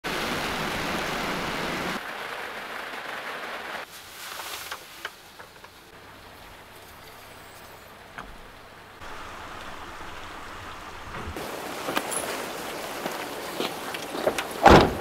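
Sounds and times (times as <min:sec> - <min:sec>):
heavy rain falling: 0:00.0 - 0:03.9, 0:08.4 - 0:15.0.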